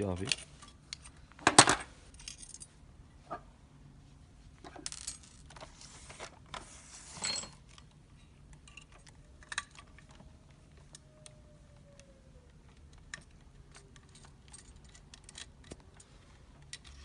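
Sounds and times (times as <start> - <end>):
pliers clicking and scraping plastic: 12.0 - 17.0.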